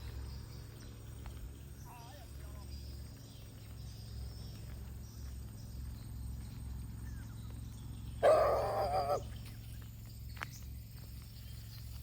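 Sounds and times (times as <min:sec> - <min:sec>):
faint high insect-like tones: 0:00.0 - 0:12.0
low outdoor rumble: 0:00.0 - 0:12.0
wavering animal call: 0:08.2 - 0:09.4.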